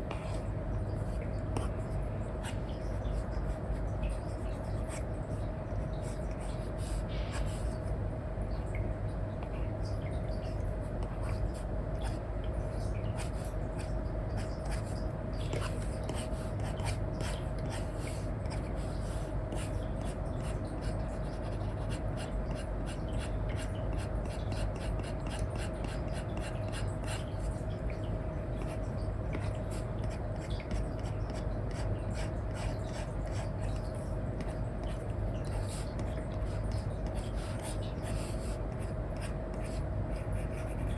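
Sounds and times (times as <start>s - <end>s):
faint steady hum: 0.0s - 40.9s
pen scratching on tablet screen: 13.2s - 27.5s, 29.4s - 40.9s.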